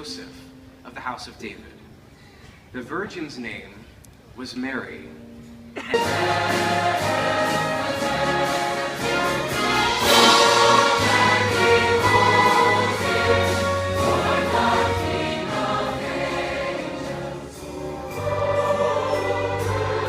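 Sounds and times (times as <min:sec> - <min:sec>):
choir singing with orchestra: 0:05.8 - 0:20.0.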